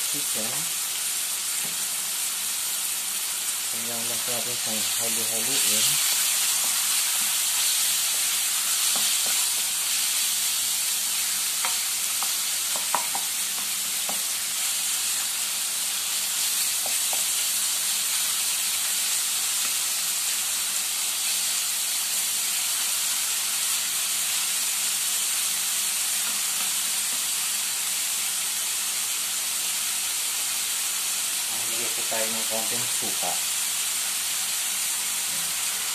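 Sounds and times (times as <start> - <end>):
chicken sizzling in a frying pan: 0.0 - 35.9.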